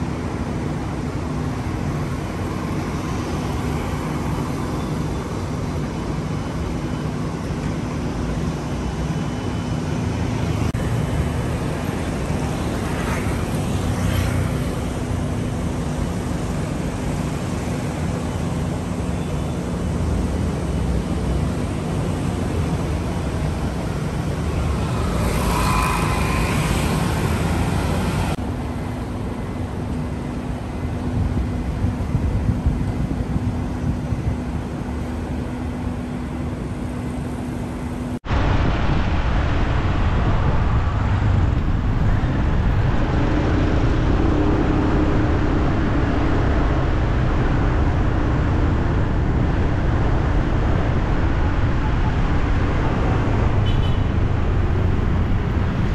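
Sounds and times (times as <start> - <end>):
road traffic rumble: 0.0 - 55.9.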